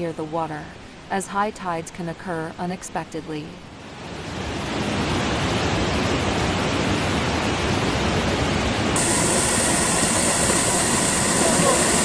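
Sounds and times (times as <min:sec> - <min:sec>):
floodwater churning: 0:09.0 - 0:12.0.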